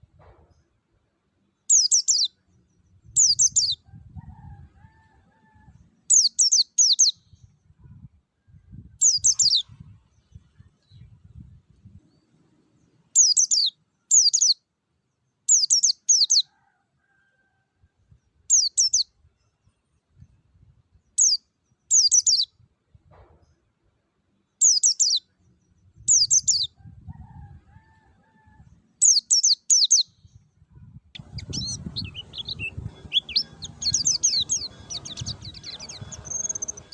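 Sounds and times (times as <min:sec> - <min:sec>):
bird singing high slurred notes: 0:31.2 - 0:36.9
low rumbling background: 0:31.2 - 0:36.9.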